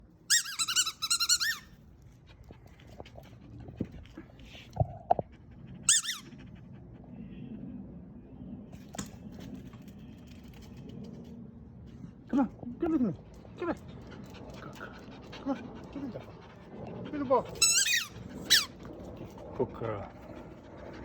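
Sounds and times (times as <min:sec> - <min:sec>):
dog panting: 0:00.7 - 0:07.4, 0:13.1 - 0:21.0
dog whining: 0:05.9 - 0:06.3, 0:17.6 - 0:18.8.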